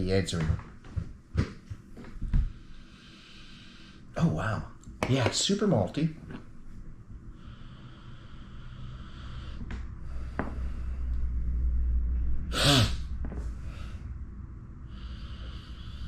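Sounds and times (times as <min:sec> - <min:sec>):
low rumble: 0:06.5 - 0:16.0.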